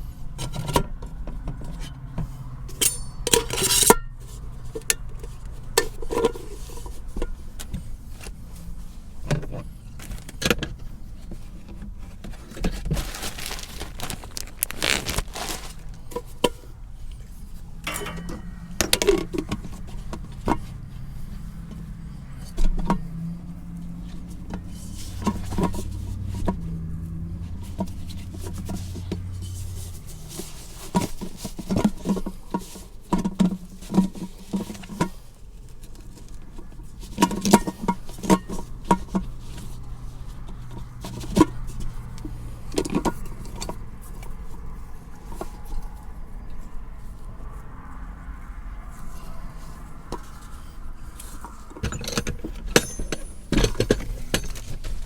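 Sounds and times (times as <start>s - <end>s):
camp cooking gear clinking: 2.7s - 4.1s, 12.7s - 16.6s, 17.8s - 20.8s, 51.8s - 55.0s.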